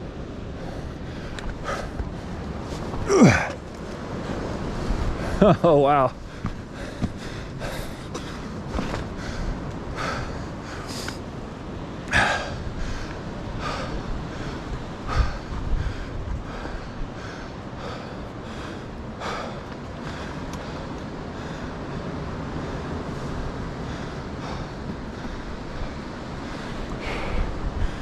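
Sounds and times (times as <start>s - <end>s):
person breathing hard: 0.5s - 2.4s, 6.2s - 11.3s, 12.1s - 21.9s, 22.6s - 28.0s.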